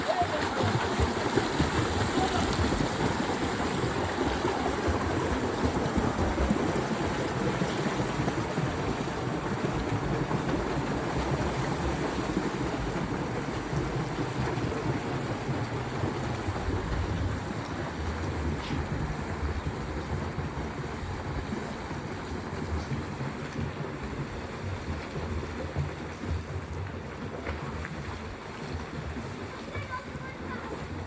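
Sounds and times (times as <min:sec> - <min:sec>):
swimmers splashing in pool: 0:00.0 - 0:31.0.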